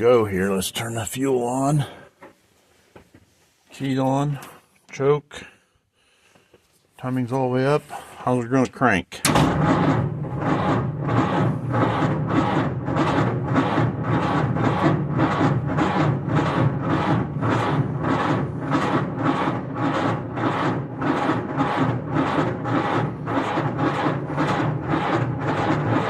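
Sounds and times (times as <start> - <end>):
engine cranking without starting: 9.3 - 26.0.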